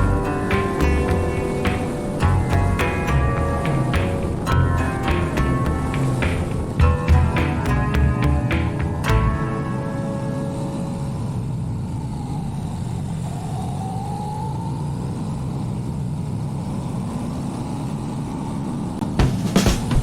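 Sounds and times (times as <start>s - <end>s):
motorcycle engine accelerating: 0.0s - 9.6s
music: 0.0s - 11.1s, 19.2s - 20.0s.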